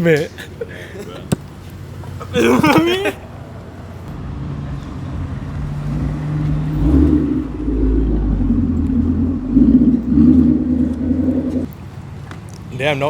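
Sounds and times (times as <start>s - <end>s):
car engine running: 3.2s - 12.0s.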